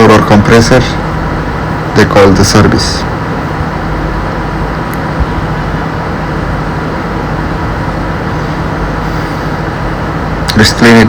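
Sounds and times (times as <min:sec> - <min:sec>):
ice maker condensing unit whirring: 0:00.0 - 0:11.0.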